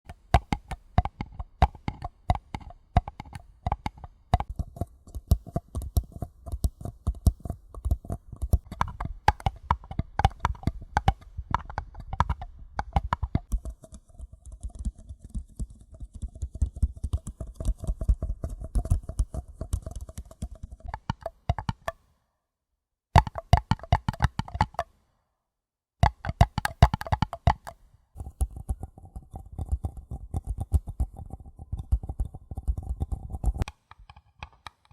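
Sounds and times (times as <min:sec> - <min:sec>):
paper cups tapped quickly: 0:00.1 - 0:22.0, 0:23.2 - 0:24.9, 0:26.0 - 0:34.9.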